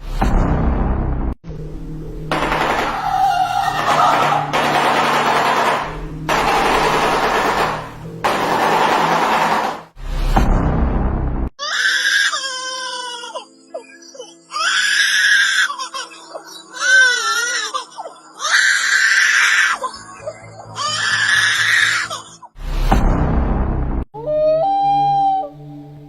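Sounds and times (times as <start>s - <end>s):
bird screaming calls: 2.6s - 4.6s.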